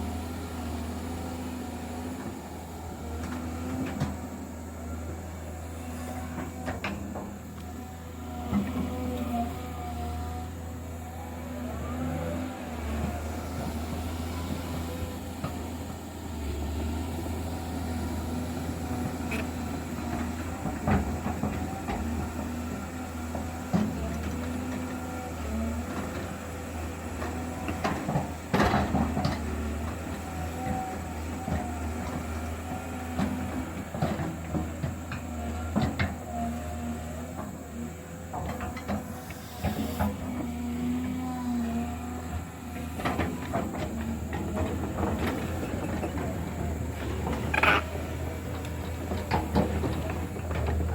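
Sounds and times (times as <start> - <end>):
heavy machine diesel engine running: 0.0 - 50.9.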